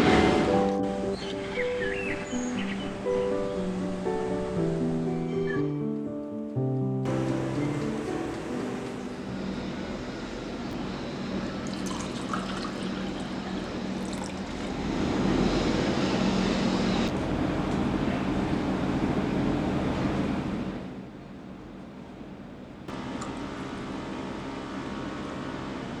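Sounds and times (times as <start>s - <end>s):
water running: 7.1s - 9.4s, 11.4s - 15.2s.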